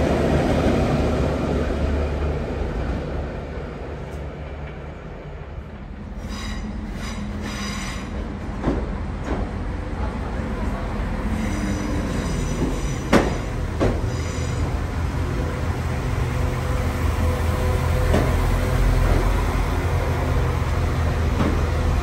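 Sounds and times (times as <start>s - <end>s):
passing train rumble: 0.0s - 22.0s
train engine hum: 0.0s - 22.0s
wheel and brake squeal: 6.2s - 8.2s, 11.3s - 14.7s.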